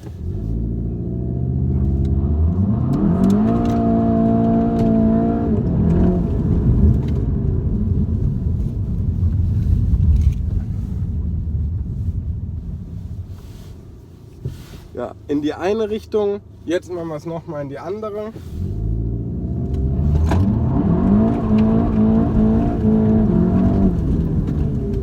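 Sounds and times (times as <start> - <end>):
car engine revving: 0.0 - 8.7, 18.4 - 25.0
car accelerating away: 0.2 - 8.1, 18.6 - 25.0.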